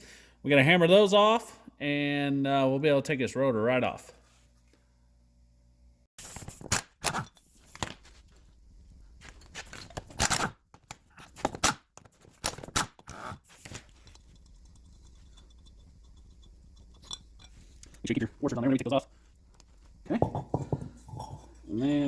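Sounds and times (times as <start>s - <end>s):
hand tools scraping and knocking metal: 13.9s - 18.9s.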